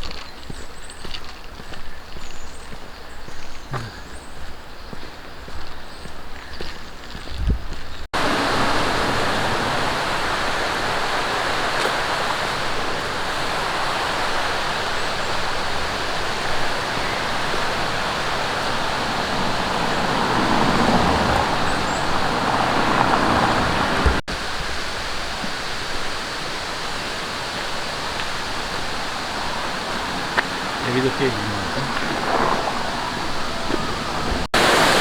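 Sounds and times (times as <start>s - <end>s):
mountain stream rushing: 8.1s - 35.0s.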